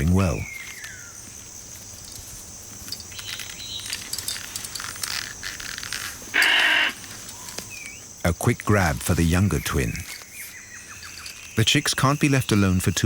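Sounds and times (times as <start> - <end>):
insects buzzing: 0.0 - 13.0
faint clicks and scrapes: 1.8 - 8.0.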